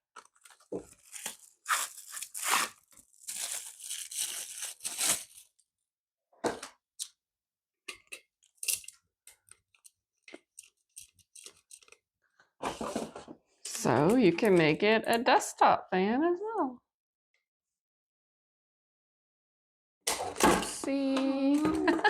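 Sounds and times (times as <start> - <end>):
packaging rustling and crinkling: 0.0 - 5.6.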